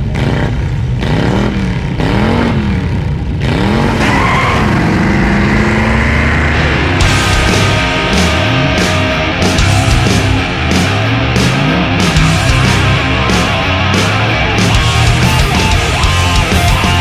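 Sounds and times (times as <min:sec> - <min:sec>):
engine revving: 0:00.0 - 0:17.0.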